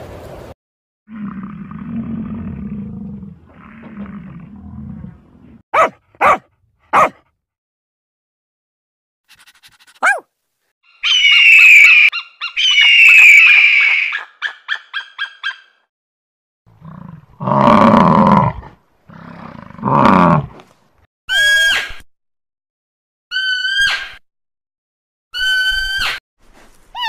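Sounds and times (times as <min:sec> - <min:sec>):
deep rough animal calls: 0:01.1 - 0:05.6
high wavering animal call: 0:10.9 - 0:15.7
high falling animal calls: 0:10.9 - 0:15.8.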